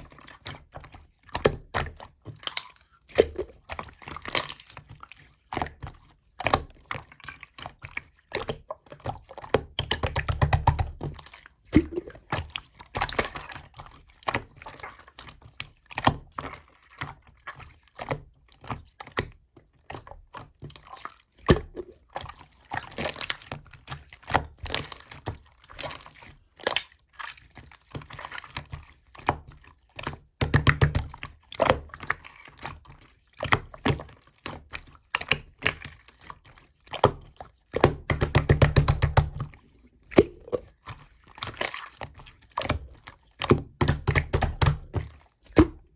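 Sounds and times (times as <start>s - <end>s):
slime squished by hand: 33.4s - 45.9s.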